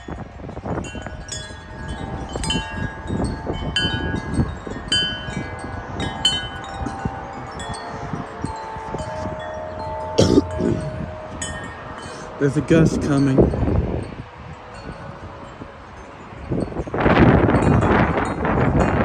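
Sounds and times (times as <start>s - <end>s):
wind chimes ringing: 0.0s - 19.0s
wind rumble on microphone: 0.0s - 19.0s.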